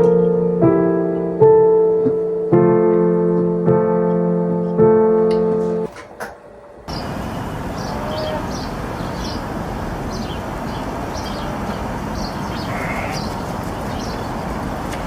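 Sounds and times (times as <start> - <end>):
outdoor background noise: 0.0 - 15.0
small birds chirping: 6.9 - 15.0.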